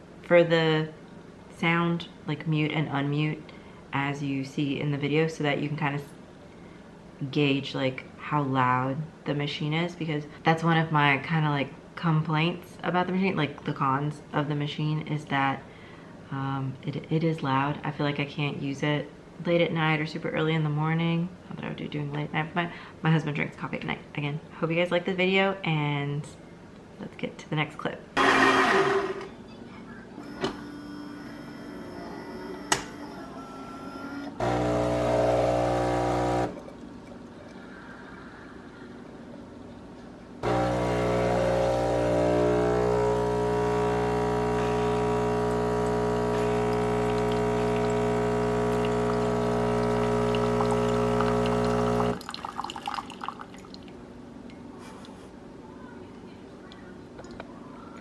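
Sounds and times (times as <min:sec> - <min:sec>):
espresso machine pump humming: 0:30.2 - 0:36.6, 0:40.4 - 0:53.3
espresso machine burst: 0:34.4 - 0:36.5, 0:40.4 - 0:52.2.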